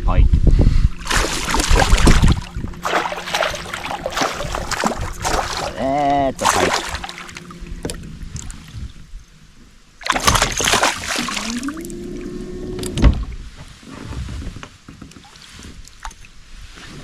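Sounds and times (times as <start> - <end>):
fish splashing and thrashing: 1.0 - 9.1, 10.0 - 12.0.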